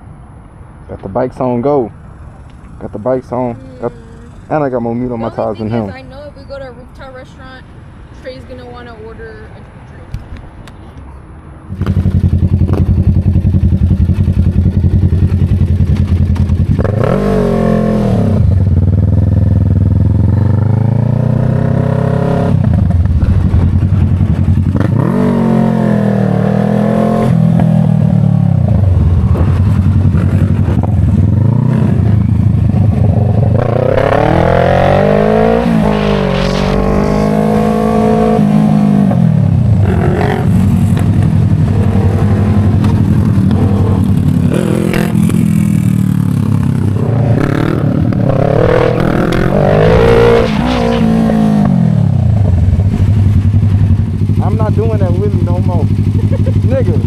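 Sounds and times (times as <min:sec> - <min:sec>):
motorcycle engine accelerating: 0:11.7 - 0:57.0.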